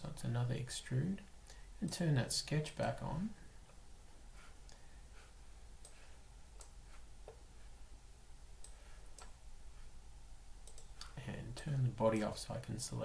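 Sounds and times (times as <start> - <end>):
low steady hum: 0.0 - 13.0
computer mouse clicks: 6.6 - 7.4, 8.6 - 9.4, 10.6 - 11.2.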